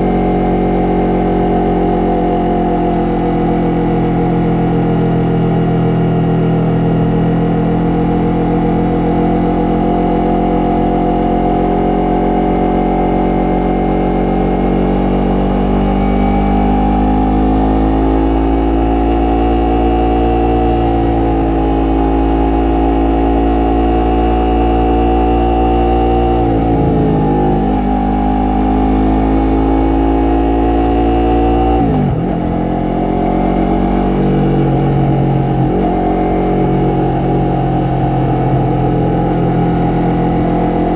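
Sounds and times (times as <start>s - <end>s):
motorcycle engine under load: 0.0s - 40.9s
low rush of wind: 26.4s - 28.2s.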